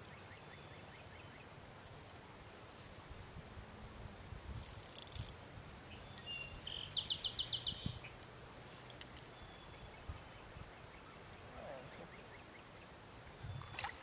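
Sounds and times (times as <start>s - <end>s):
songbird singing: 0.0s - 1.6s, 4.6s - 14.0s.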